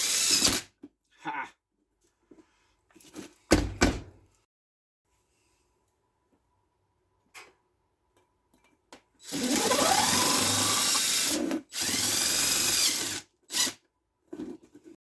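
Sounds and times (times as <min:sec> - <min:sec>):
power drill running: 0:09.2 - 0:13.8.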